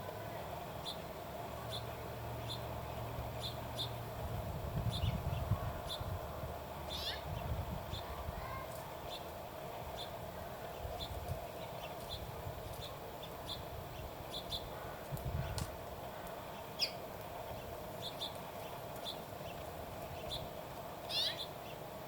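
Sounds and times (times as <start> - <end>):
small birds chirping: 0.8 - 4.0, 4.8 - 6.3, 6.9 - 22.0.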